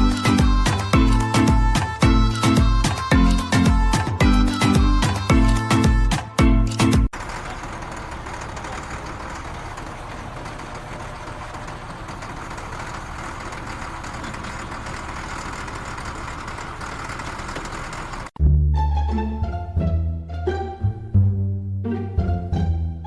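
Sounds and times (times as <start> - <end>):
motor running: 7.1 - 18.3.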